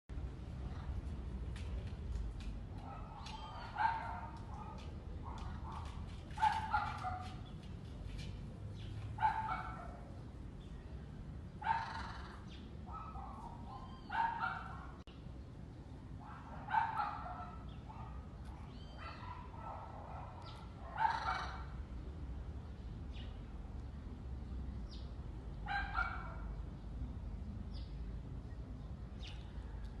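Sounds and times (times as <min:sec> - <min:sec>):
harsh animal calls: 0:11.7 - 0:12.5.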